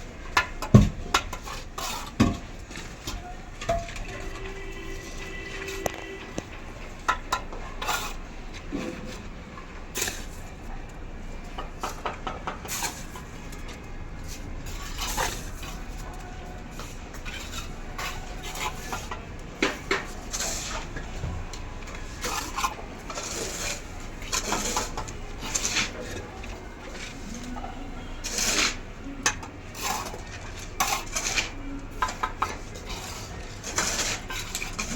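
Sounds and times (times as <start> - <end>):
trowel scraping mortar: 1.1 - 3.1, 3.9 - 9.3, 14.6 - 16.1, 16.8 - 21.0, 22.0 - 34.9
trowel tapping on bricks: 11.5 - 13.0.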